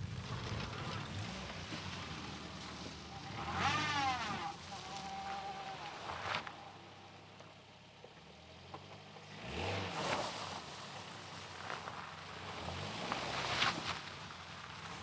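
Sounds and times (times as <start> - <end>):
vehicle engine revving: 0.0 - 6.4, 9.2 - 10.3.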